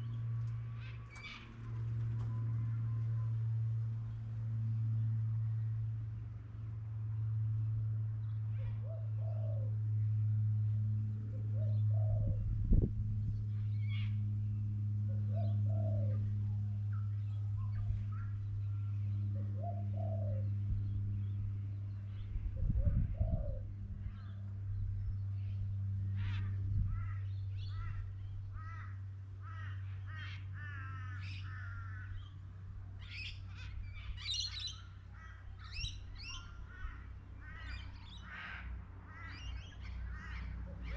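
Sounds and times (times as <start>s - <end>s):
low hum: 0.0s - 40.9s
bird cooing: 8.6s - 9.8s, 11.3s - 12.6s, 15.0s - 16.4s, 17.6s - 20.7s, 22.5s - 23.8s.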